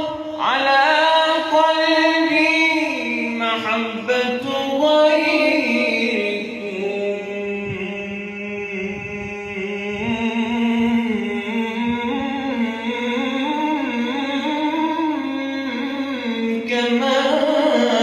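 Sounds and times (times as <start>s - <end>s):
man singing melismatic devotional song: 0.0s - 18.0s.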